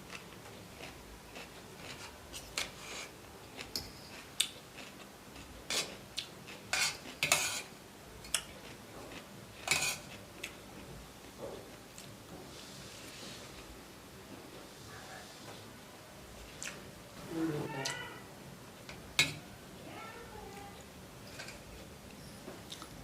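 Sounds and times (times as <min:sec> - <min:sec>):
cutlery clinking on a plate: 0:09.6 - 0:10.1.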